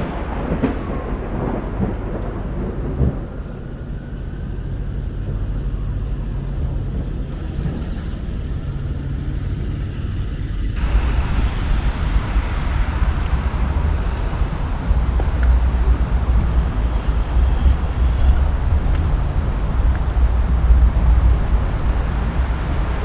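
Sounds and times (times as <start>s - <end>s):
steady hiss: 0.0s - 23.0s
traffic on wet street: 0.0s - 23.0s.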